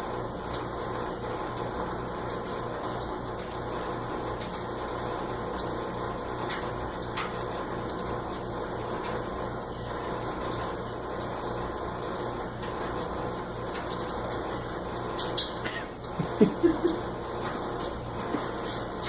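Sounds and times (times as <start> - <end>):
machine hum and hiss: 0.0 - 19.0.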